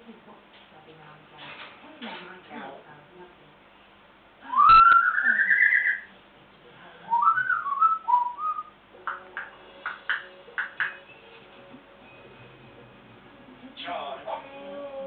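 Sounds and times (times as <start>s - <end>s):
parrot whistling: 4.5s - 6.1s, 7.1s - 9.2s.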